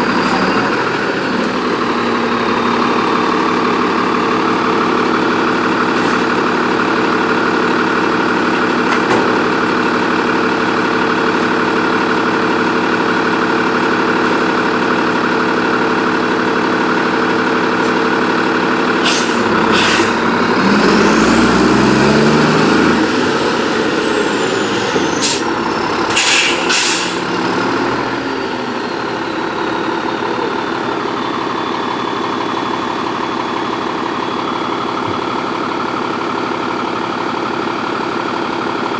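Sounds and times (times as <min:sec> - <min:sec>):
truck diesel engine idling and revving: 0:00.0 - 0:38.9
air brake hisses: 0:19.0 - 0:20.2, 0:24.9 - 0:25.5, 0:26.1 - 0:27.3.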